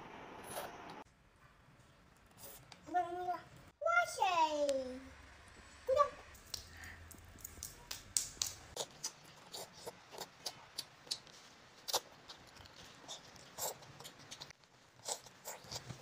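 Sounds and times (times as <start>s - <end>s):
child chewing food: 6.4s - 16.0s.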